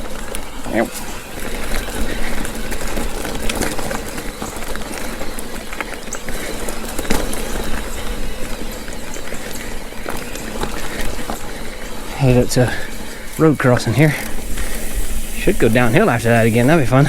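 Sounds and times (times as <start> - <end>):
bike tyres on dirt trail: 0.0 - 17.0
wind rumbling on microphone: 14.3 - 17.0.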